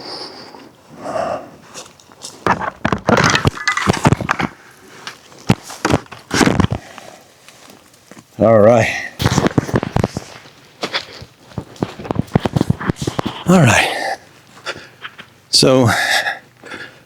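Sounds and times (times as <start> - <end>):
footsteps and scuffing: 1.7 - 8.3, 9.2 - 13.5
knocks and thuds: 2.4 - 4.6.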